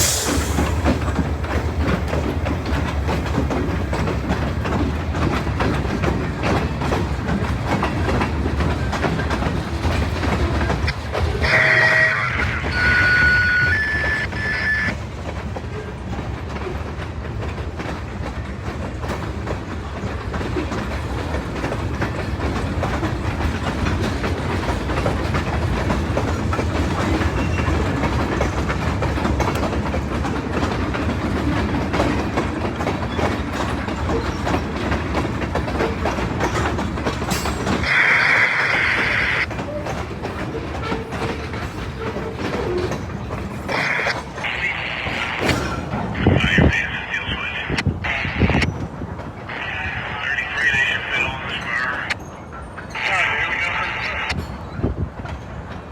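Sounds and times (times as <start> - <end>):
freight train clattering: 0.0 - 55.9
high-pitched squeal: 11.4 - 15.0, 37.8 - 39.5.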